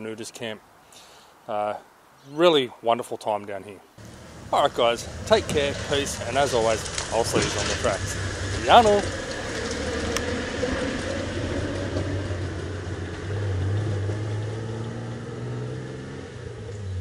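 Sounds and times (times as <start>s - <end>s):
engine driving off changing gear: 4.0s - 17.0s.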